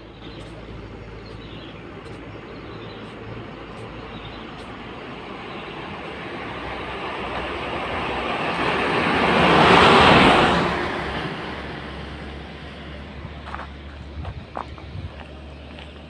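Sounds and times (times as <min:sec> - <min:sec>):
road vehicle passing: 0:00.0 - 0:16.0.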